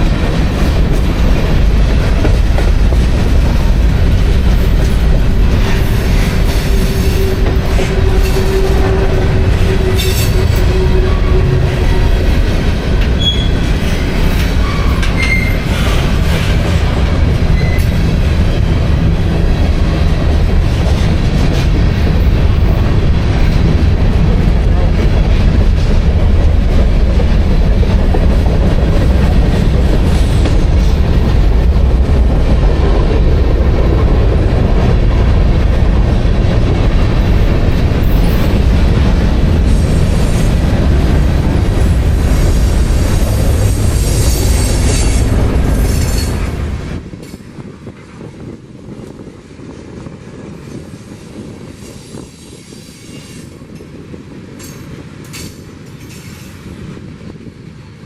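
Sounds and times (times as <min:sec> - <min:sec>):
freight train rumbling past: 0:00.0 - 0:58.0
high-pitched wheel squeal: 0:13.2 - 0:13.7, 0:14.6 - 0:15.6, 0:17.6 - 0:17.9.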